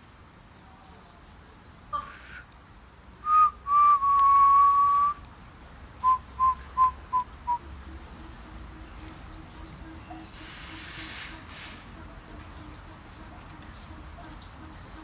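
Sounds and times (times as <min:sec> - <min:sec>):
person whistling: 0:03.2 - 0:05.2, 0:06.0 - 0:07.6.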